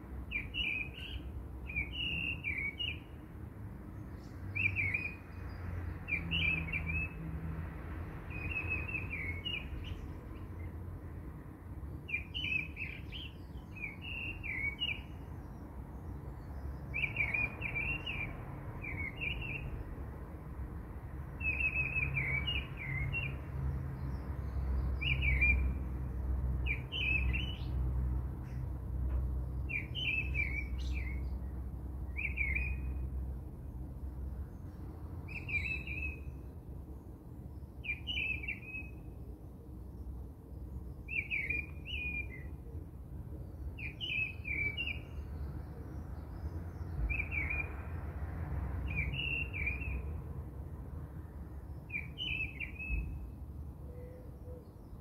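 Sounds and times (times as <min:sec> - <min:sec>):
small birds chirping: 0:00.2 - 0:03.2, 0:08.3 - 0:10.8, 0:11.9 - 0:20.0, 0:21.4 - 0:33.0, 0:34.5 - 0:36.6, 0:39.9 - 0:42.6, 0:43.4 - 0:47.8, 0:51.6 - 0:55.0.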